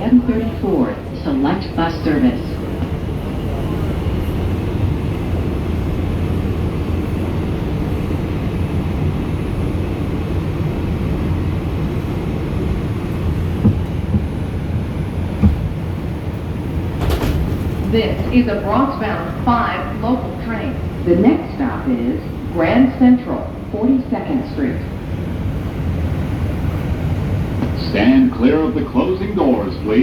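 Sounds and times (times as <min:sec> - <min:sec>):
subway car rumble: 0:00.0 - 0:30.0
faint knocks: 0:13.6 - 0:14.5, 0:15.4 - 0:15.9.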